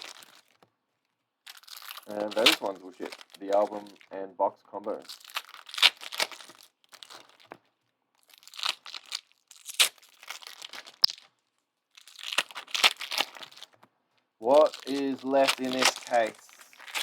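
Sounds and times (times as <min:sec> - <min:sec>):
card wrappers tearing and crinkling: 0:00.0 - 0:00.6, 0:01.5 - 0:04.0, 0:04.9 - 0:07.6, 0:08.3 - 0:11.3, 0:12.0 - 0:13.8, 0:14.4 - 0:17.0.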